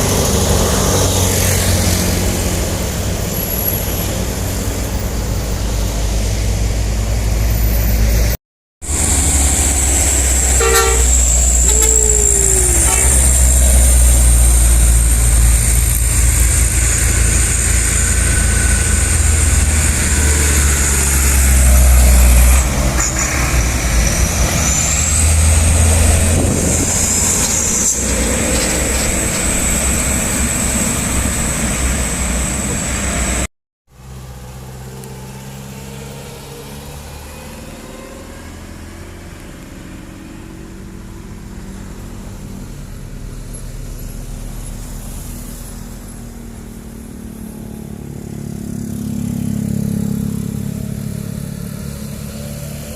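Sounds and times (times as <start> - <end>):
vehicle engine rumbling: 0.0 - 52.9
high whine rising in pitch: 8.9 - 22.5.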